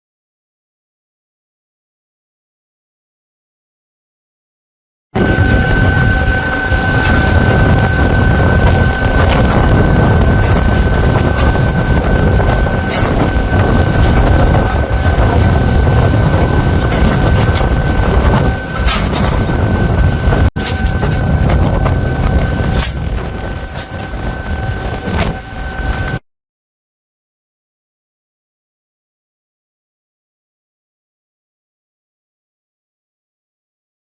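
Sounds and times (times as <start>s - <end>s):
ship machinery rumble: 5.2s - 26.2s
thin high whine: 5.2s - 26.2s
wind on microphone: 5.2s - 26.2s.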